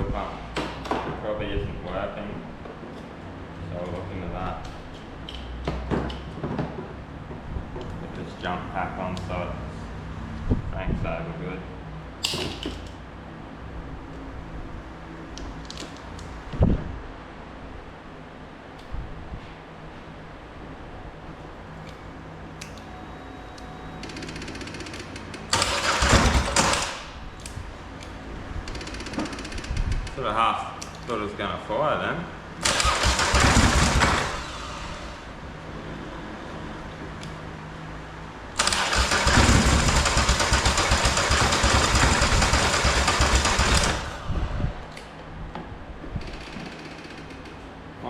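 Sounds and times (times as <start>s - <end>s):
fast mechanical ticking: 24.0s - 27.1s, 28.6s - 30.2s, 32.6s - 34.4s, 38.6s - 44.2s
engine cranked by electric starter: 24.2s - 27.2s, 32.6s - 35.3s, 38.5s - 44.5s.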